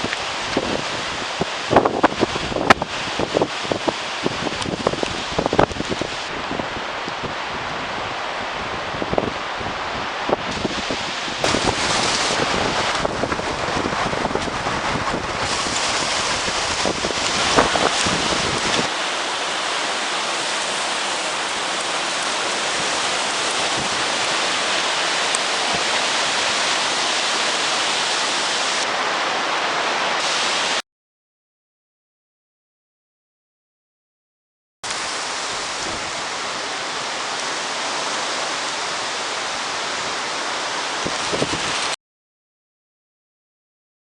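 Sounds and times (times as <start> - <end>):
strong wind on microphone: 0.0 - 18.9, 21.7 - 30.6, 35.0 - 38.6, 40.9 - 42.0
heavy surf: 0.0 - 30.8, 34.8 - 42.0.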